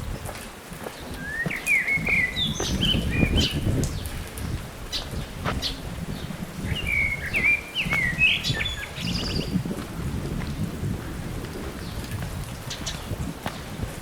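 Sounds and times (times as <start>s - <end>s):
steady low rumble: 0.0s - 14.0s
songbird whistling: 1.2s - 3.6s, 6.7s - 9.5s.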